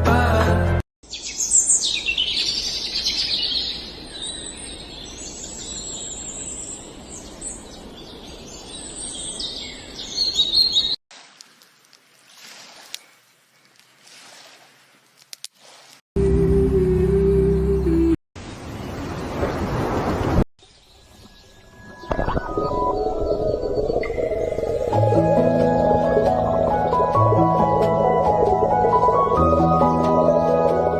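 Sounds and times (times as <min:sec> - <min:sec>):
birds chirping and singing: 0:01.0 - 0:11.0, 0:20.6 - 0:30.9.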